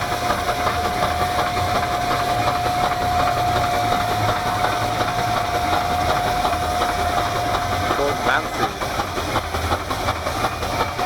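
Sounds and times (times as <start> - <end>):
steam engine pulsing: 0.0 - 11.0.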